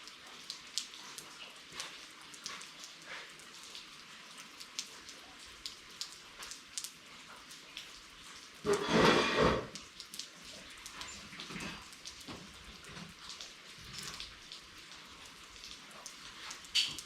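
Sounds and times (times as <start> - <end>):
sharp drip ticks: 0.0 - 8.5
rain hissing: 8.4 - 12.0.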